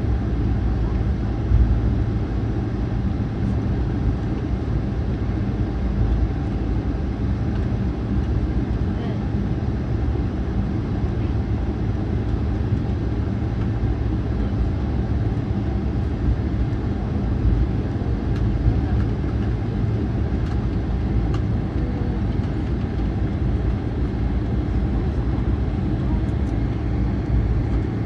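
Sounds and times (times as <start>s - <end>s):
airliner cabin rumble: 0.0s - 28.0s.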